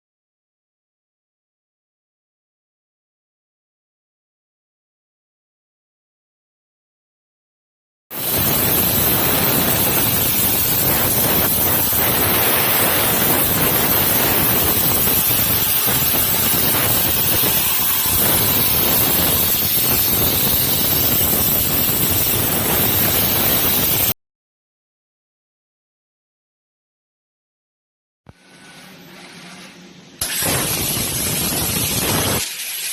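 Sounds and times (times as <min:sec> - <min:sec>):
plasma cutter hissing: 0:08.1 - 0:24.2, 0:30.2 - 0:32.9.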